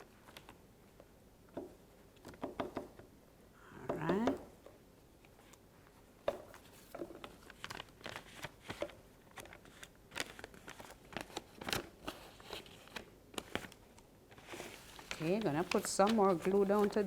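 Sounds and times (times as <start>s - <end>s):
paper crinkling and rustling: 0.0s - 0.6s, 5.3s - 17.0s.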